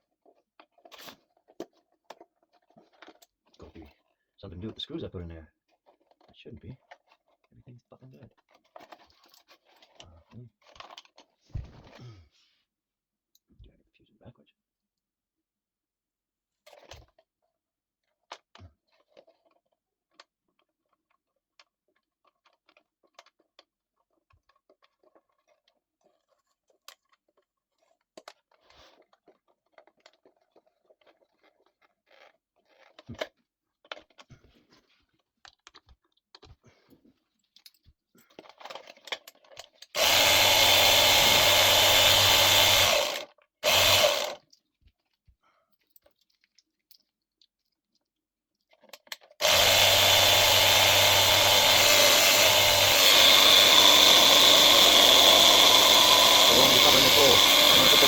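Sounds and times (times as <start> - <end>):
clicks and rattles of parts: 37.3 - 40.1, 42.9 - 49.5
air compressor motor buzzing: 40.0 - 44.4, 49.4 - 58.0.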